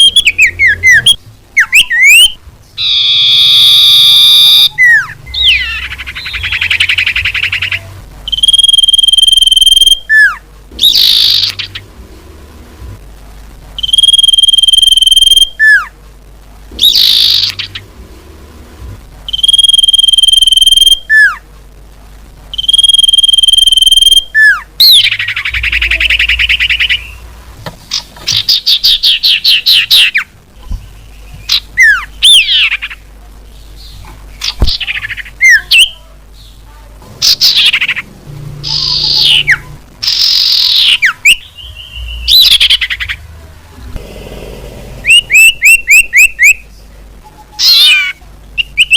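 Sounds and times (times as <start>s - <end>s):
bird whistles and calls: 0.0s - 11.8s, 31.4s - 32.8s, 45.1s - 46.6s
buzzy chattering bird trills: 0.0s - 11.9s, 16.8s - 17.9s, 22.6s - 27.3s, 37.2s - 43.2s, 44.2s - 46.7s.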